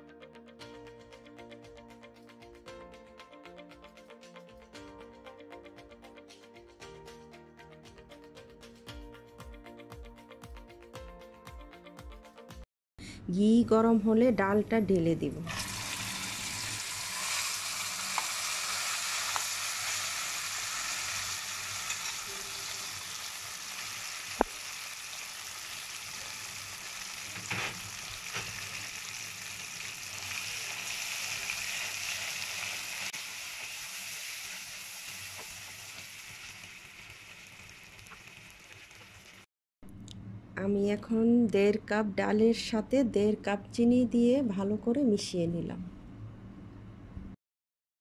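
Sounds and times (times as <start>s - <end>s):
paste sizzling in hot fat: 15.5s - 39.5s.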